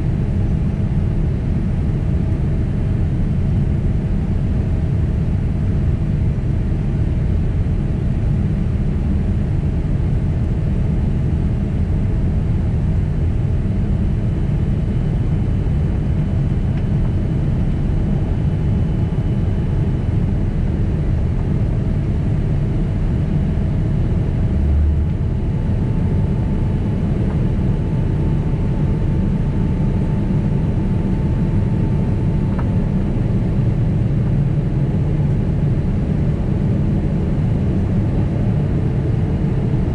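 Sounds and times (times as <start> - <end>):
jet engine roar in cabin: 0.0 - 39.9
faint whine tones: 14.3 - 35.1.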